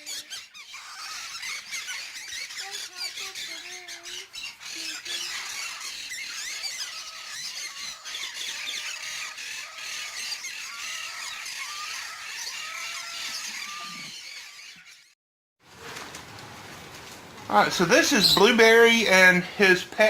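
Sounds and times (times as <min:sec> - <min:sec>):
high bird chirps and squeals: 0:00.0 - 0:15.2, 0:17.7 - 0:19.1
short arched bird calls: 0:00.0 - 0:15.2.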